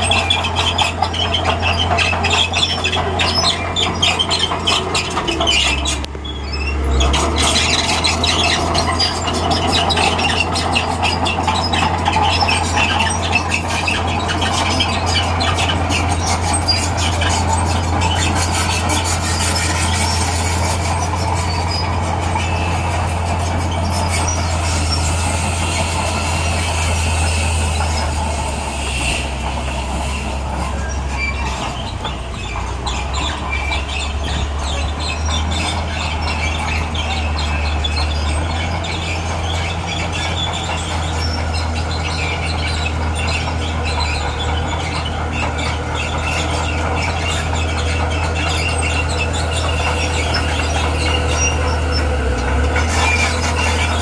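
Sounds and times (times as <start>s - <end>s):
crawler tracks squealing and clattering: 0.0s - 54.0s
diesel engine droning low: 0.0s - 54.0s.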